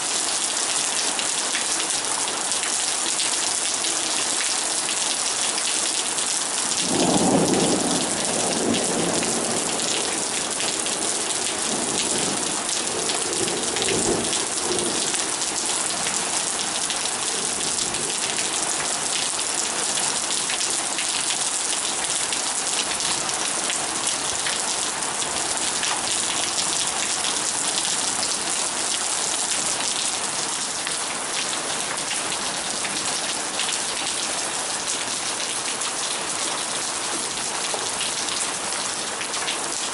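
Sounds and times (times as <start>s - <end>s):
heavy rain pouring: 0.0s - 39.9s
thunder rumbling: 6.8s - 15.3s.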